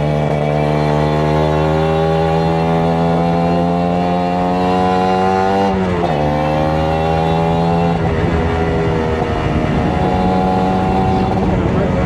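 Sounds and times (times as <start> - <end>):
two-stroke motorcycle engine revving: 0.0 - 12.0.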